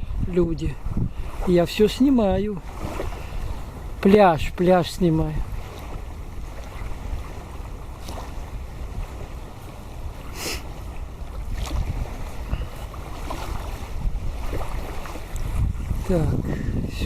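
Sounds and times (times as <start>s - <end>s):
river water lapping: 0.0s - 17.0s
wind buffeting microphone: 0.0s - 17.0s
wind hiss: 5.2s - 17.0s
short hiss: 10.4s - 10.7s.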